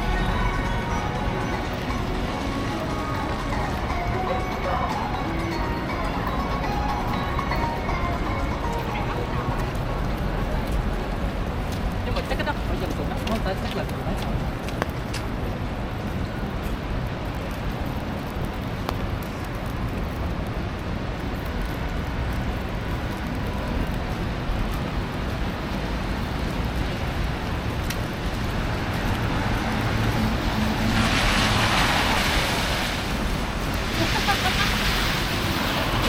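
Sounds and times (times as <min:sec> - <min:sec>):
traffic rumble: 0:00.0 - 0:36.0
vehicle passing on snowy road: 0:28.2 - 0:36.0.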